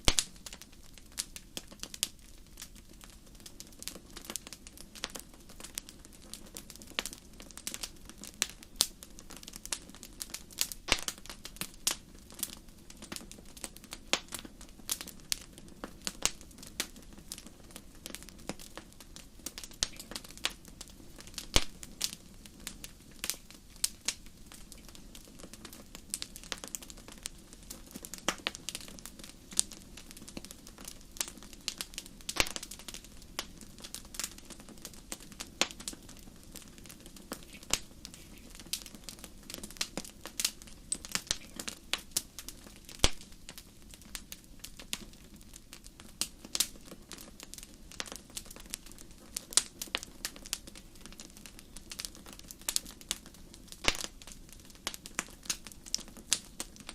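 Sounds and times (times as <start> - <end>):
fire crackling and popping: 0.0 - 56.9.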